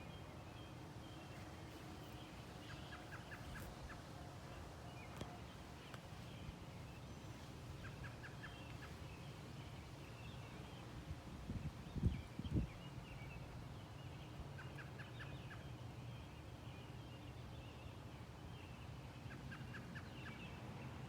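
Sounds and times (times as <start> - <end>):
faint birdsong: 0.0 - 21.0.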